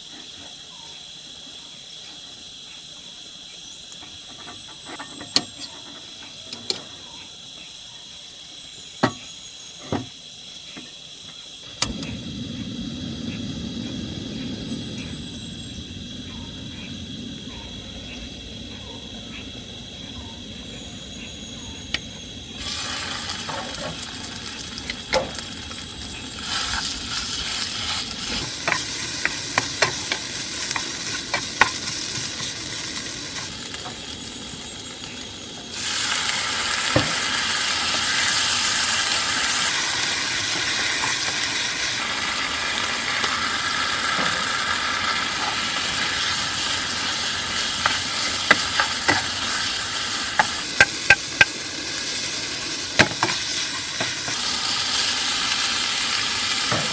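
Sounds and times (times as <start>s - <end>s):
food sizzling in hot oil: 11.1s - 56.9s
utensil tapping cookware: 47.8s - 49.4s.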